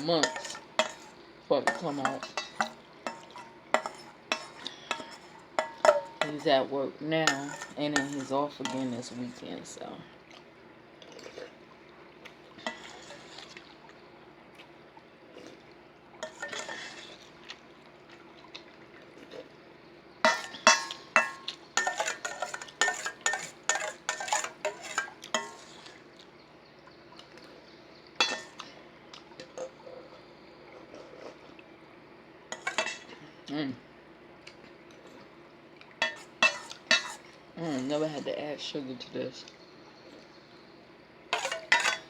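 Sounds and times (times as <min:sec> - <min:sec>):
spoon clinking against a dish: 0:00.0 - 0:01.1, 0:01.7 - 0:06.5, 0:07.2 - 0:09.2, 0:20.3 - 0:25.7, 0:28.2 - 0:28.6, 0:36.0 - 0:37.2, 0:41.4 - 0:42.0.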